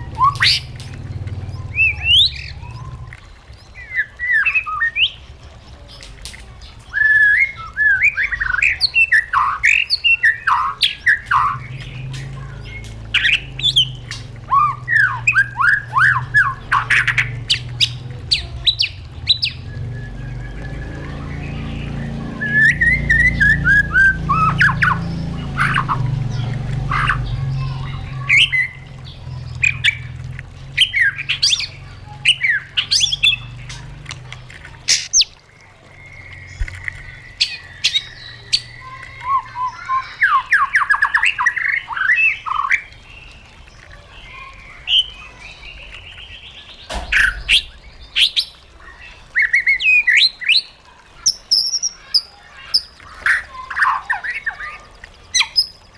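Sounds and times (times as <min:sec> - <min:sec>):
low steady hum: 0:00.0 - 0:49.4
bird singing whistled phrases: 0:01.6 - 0:05.2, 0:06.9 - 0:11.8, 0:12.6 - 0:25.0.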